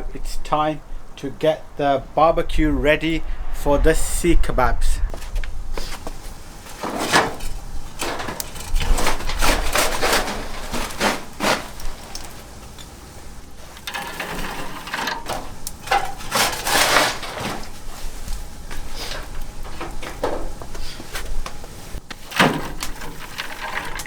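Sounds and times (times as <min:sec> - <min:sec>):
charcoal crunching and rattling: 0:05.2 - 0:24.0.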